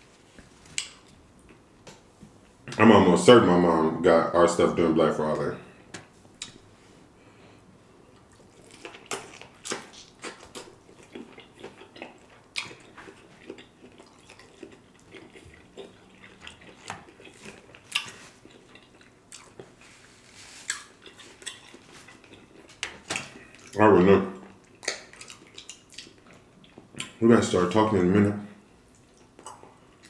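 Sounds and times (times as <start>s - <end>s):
man chewing: 6.3s - 23.8s, 24.4s - 27.2s, 28.7s - 30.0s
sharp mouth clicks and smacks: 24.6s - 27.2s.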